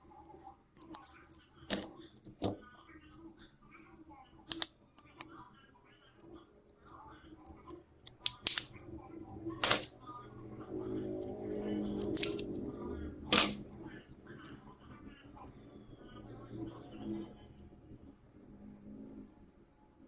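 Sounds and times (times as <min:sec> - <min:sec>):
faint low hum: 0:00.0 - 0:20.0
small tools clicking and tapping: 0:04.5 - 0:05.3, 0:07.4 - 0:08.7.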